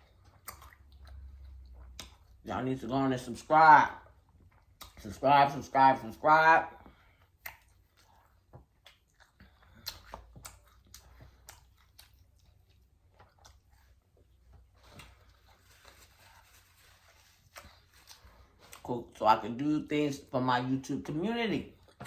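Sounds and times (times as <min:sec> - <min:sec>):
person chewing food: 0:00.0 - 0:02.5, 0:03.9 - 0:05.2, 0:06.7 - 0:18.9, 0:21.7 - 0:22.0
soft mouth clicks and smacks: 0:00.1 - 0:02.4, 0:04.3 - 0:05.0, 0:07.2 - 0:15.2.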